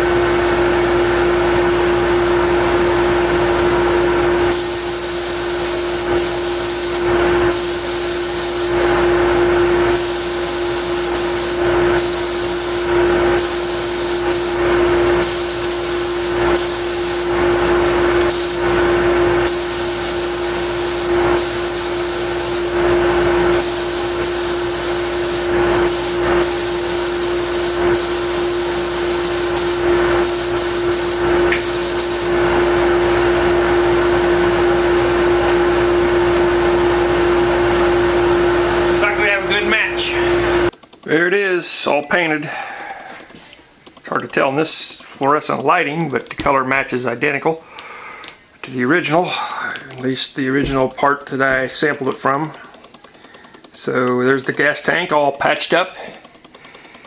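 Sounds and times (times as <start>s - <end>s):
mechanical hum: 0.0s - 57.0s
spray gun hissing: 4.4s - 32.6s.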